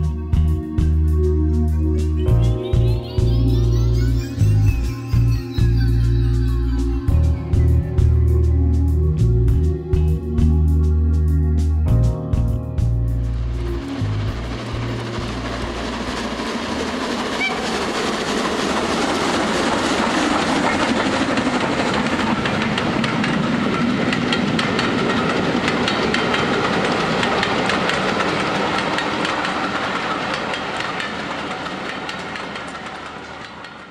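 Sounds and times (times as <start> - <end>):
train wheels clattering over joints: 13.6 - 33.9.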